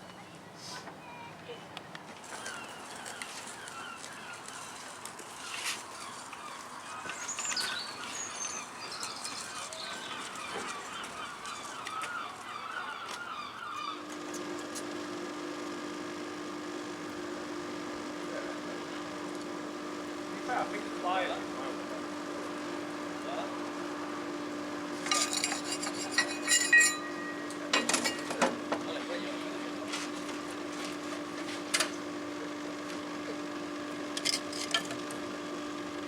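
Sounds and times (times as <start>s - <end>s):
birds calling: 0.0s - 14.1s
steady low machine tone: 14.4s - 29.8s.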